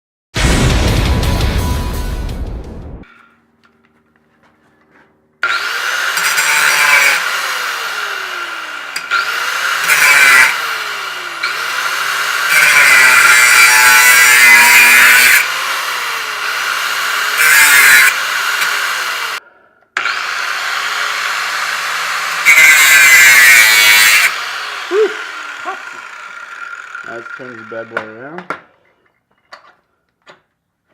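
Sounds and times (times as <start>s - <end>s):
power tool whining: 4.8s - 19.4s, 20.0s - 28.2s.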